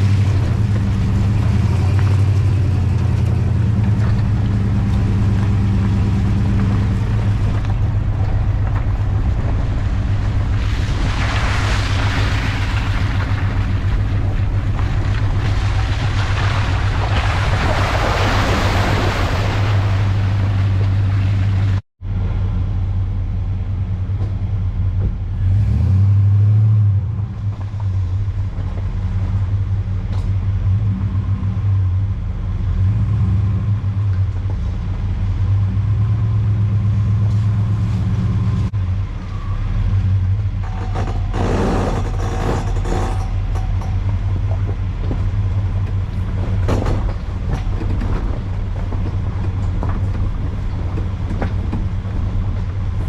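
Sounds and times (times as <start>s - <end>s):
vehicle engine and tyre rumble: 0.0s - 53.0s.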